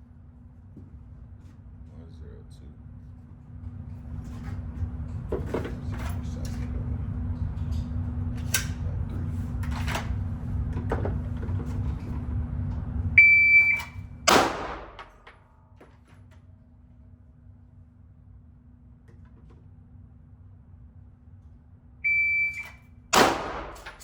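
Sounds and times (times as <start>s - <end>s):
low steady rumble: 0.0s - 24.0s
shot timer beep: 13.2s - 14.0s, 22.1s - 22.8s
pistol shot: 14.3s - 15.1s, 23.1s - 24.0s.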